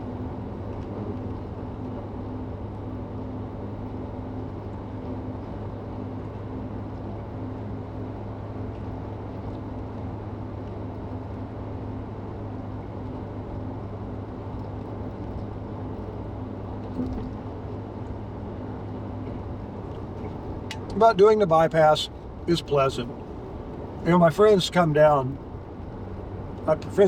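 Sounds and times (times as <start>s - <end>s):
engine and drivetrain hum: 0.0s - 27.0s
tyre and road noise: 19.0s - 27.0s.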